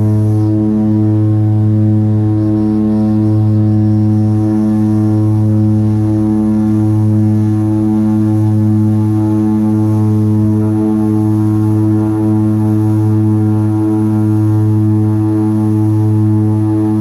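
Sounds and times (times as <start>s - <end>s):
propeller aircraft engines droning: 0.0s - 17.0s.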